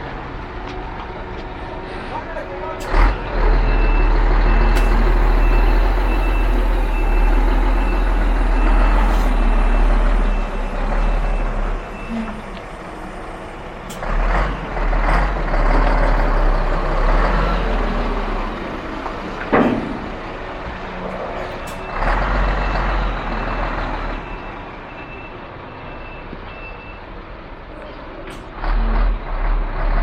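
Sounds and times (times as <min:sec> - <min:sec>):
diesel truck engine running: 0:00.0 - 0:25.9
reversing alarm beeping: 0:03.6 - 0:12.4
air brakes hissing: 0:04.7 - 0:09.6.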